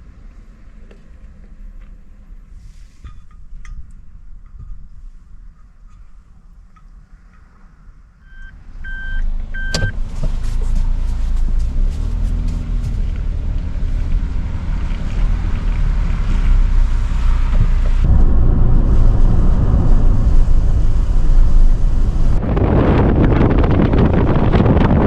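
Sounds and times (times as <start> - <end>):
strong wind buffeting microphone: 9.7 - 25.0.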